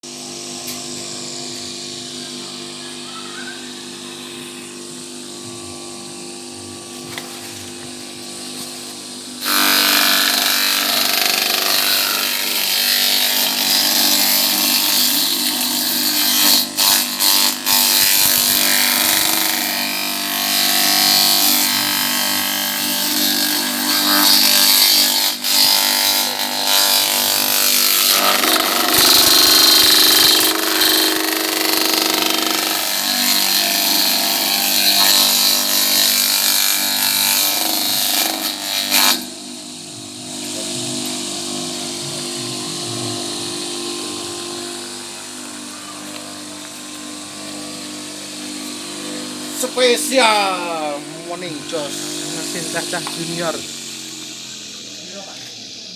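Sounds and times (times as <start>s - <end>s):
electric motor humming: 0.0s - 55.9s
rough chopping noise: 27.8s - 31.2s.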